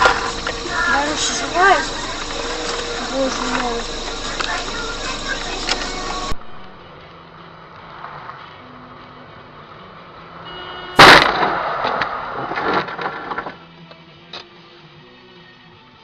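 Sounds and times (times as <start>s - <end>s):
car impact bang: 11.0s - 13.5s.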